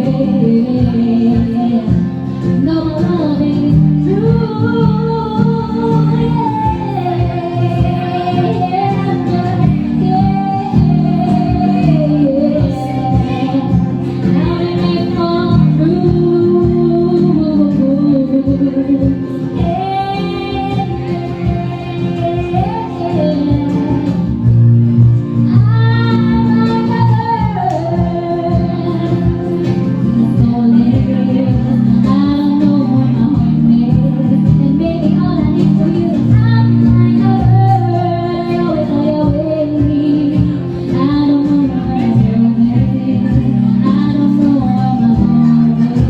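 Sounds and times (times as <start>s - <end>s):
acoustic guitar: 0.0s - 46.0s
woman singing pop melody: 0.0s - 46.0s.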